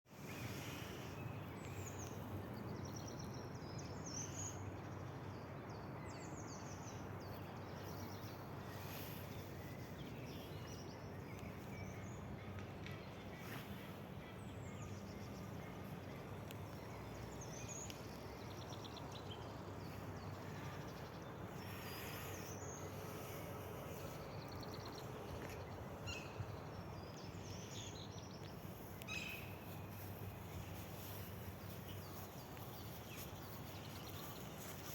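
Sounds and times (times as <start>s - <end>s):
small birds chirping and trilling: 0.2s - 34.9s
steady background hiss: 13.1s - 34.9s.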